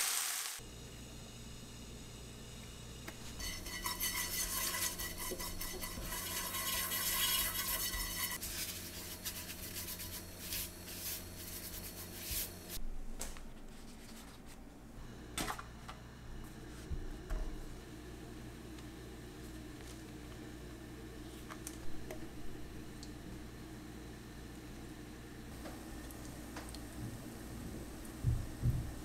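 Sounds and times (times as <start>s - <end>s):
utensil scraping a pan: 3.2s - 12.5s.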